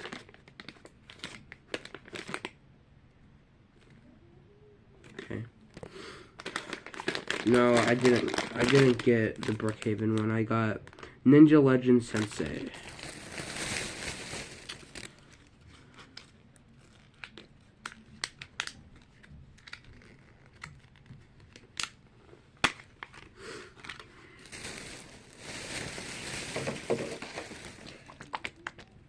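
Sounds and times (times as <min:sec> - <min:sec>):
plastic packaging crinkling: 0:00.0 - 0:02.6, 0:06.3 - 0:11.1, 0:12.0 - 0:22.0, 0:22.6 - 0:29.0.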